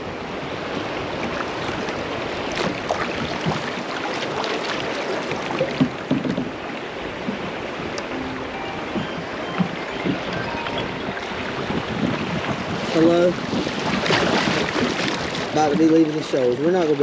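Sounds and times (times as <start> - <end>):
rushing creek water: 0.0 - 17.0
small splashes and gurgles: 1.2 - 7.0, 12.2 - 15.9.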